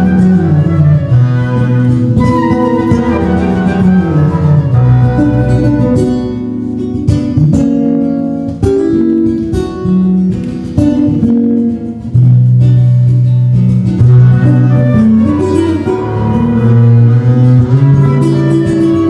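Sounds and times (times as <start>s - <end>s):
low held bass notes: 0.0s - 6.4s, 11.2s - 19.0s
acoustic guitar plucking and strumming: 0.0s - 19.0s.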